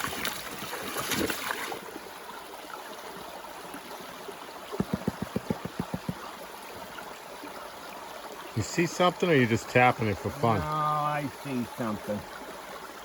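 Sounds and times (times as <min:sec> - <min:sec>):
stream water running: 0:00.0 - 0:13.0
taps on metal pan: 0:04.8 - 0:06.2.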